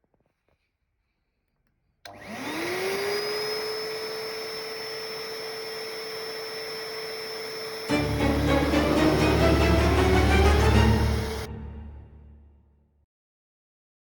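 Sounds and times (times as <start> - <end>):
vacuum cleaner motor whining: 2.1 - 11.5.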